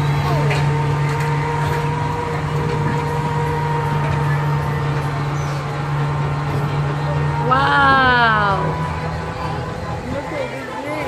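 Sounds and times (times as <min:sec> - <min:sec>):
ride car mechanical hum: 0:00.0 - 0:11.0.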